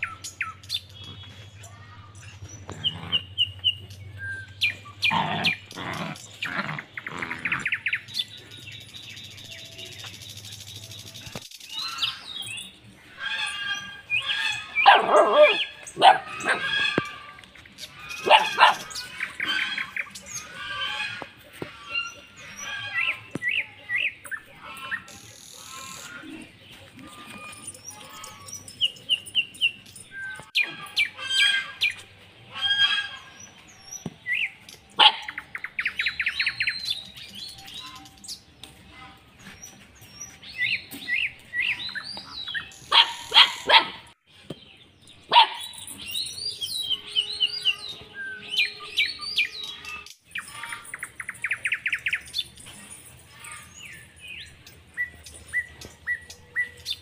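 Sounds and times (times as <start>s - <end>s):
small birds chirping: 0.0s - 57.0s
dog barks: 14.8s - 16.9s, 18.2s - 19.0s, 35.0s - 35.4s, 42.9s - 44.2s, 45.3s - 45.8s.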